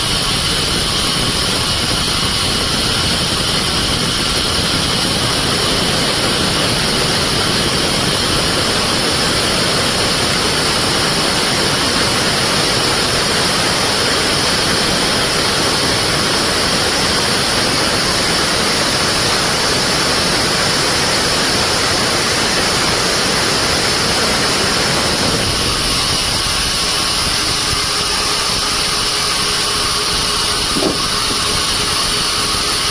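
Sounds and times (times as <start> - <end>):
band saw running: 0.0 - 32.9.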